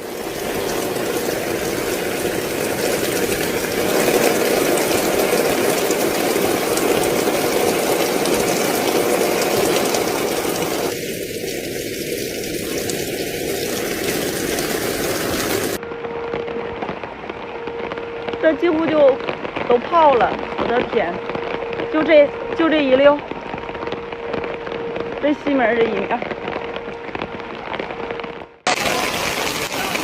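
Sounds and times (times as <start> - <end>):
floodwater rushing: 0.0 - 15.8, 28.7 - 30.0.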